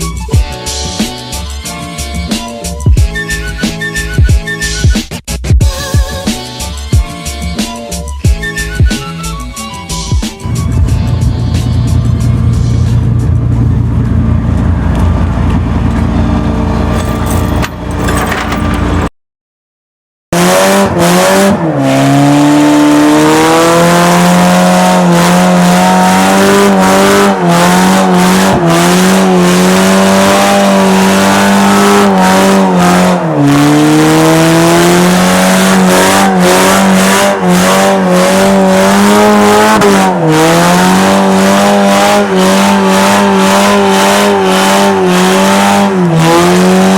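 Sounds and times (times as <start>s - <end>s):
low rumbling engine: 10.4s - 19.1s
engine revving high: 20.4s - 46.9s.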